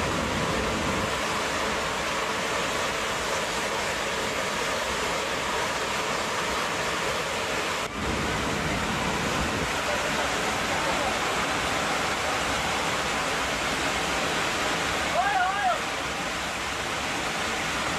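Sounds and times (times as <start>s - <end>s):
rushing roar of air: 0.0s - 17.9s.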